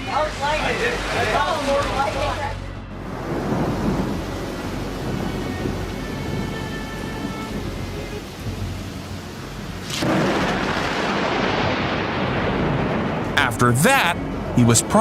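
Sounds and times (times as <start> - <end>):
faint background music: 0.0 - 10.0, 13.4 - 15.0
rain: 0.0 - 15.0
loud thunderclap: 3.1 - 8.8, 9.8 - 14.6.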